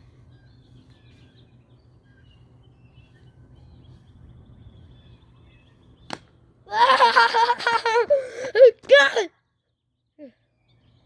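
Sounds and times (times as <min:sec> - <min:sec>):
faint small-bird chirps: 0:00.0 - 0:06.2, 0:09.4 - 0:11.0.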